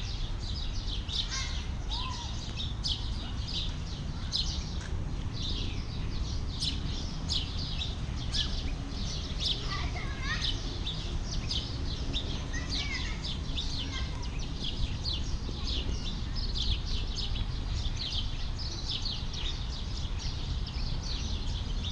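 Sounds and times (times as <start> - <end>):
lower curving bird calls: 0.0 - 21.9
small birds chirping: 0.0 - 21.9.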